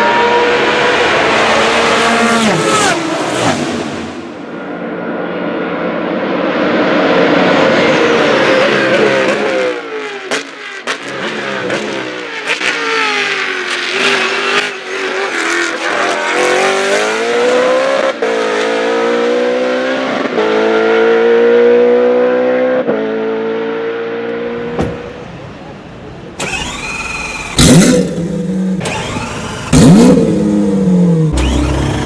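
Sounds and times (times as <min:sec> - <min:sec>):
racing car engine revving: 0:00.0 - 0:04.4, 0:06.7 - 0:24.7, 0:26.4 - 0:32.0
sharp engine cracks: 0:26.4 - 0:30.6, 0:31.3 - 0:32.0.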